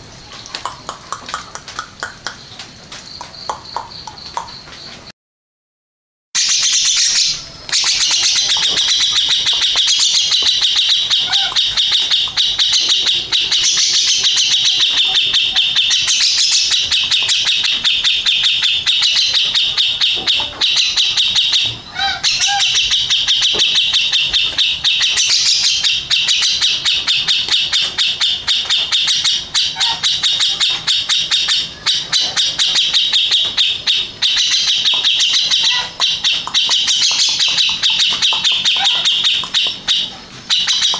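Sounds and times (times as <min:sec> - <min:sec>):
bird singing chattering song: 0:00.0 - 0:05.1, 0:06.4 - 0:40.9.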